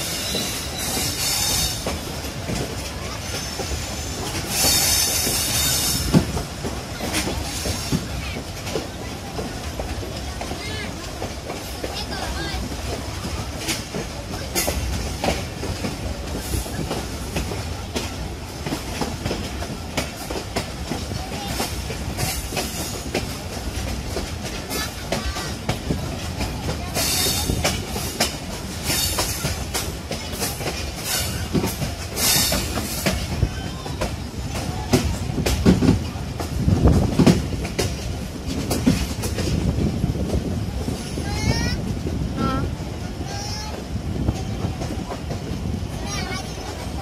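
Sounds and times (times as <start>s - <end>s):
rail joint clicks: 0.0s - 47.0s
train wheels rumbling on rails: 0.0s - 47.0s.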